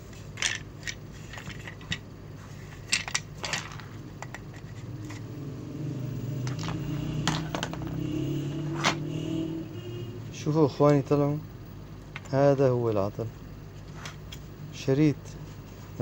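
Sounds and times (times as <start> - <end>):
air blower parts clicking and rattling: 0.0 - 2.1, 2.7 - 5.3, 12.0 - 13.2.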